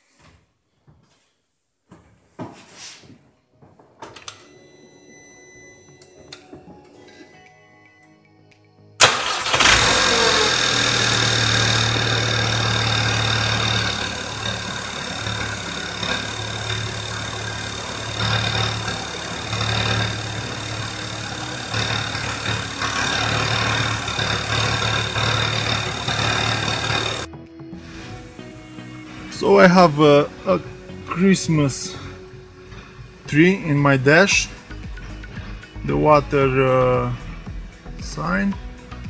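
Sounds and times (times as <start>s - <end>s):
car engine starting and idling: 9.0s - 35.8s.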